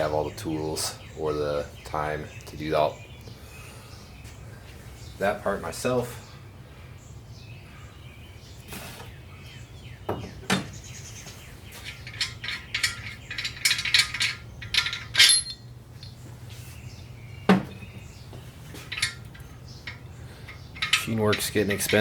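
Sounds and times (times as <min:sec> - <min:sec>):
steady low hum: 0:10.7 - 0:22.0
metal tools clinking and knocking: 0:11.7 - 0:16.2, 0:18.7 - 0:22.0.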